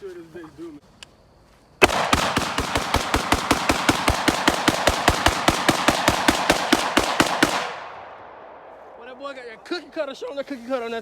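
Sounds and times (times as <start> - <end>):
rapid gunfire: 1.8 - 8.6.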